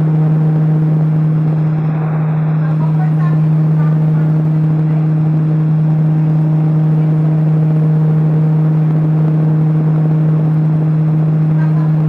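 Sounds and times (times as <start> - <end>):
rushing air: 0.0 - 6.6
electric fan motor humming: 0.0 - 12.0.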